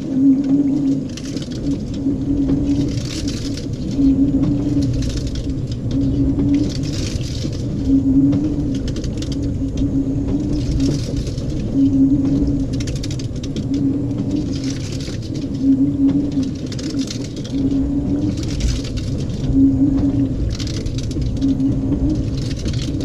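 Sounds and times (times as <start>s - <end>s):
washing machine motor humming: 0.0s - 23.0s
water and wet laundry swishing: 0.0s - 23.0s.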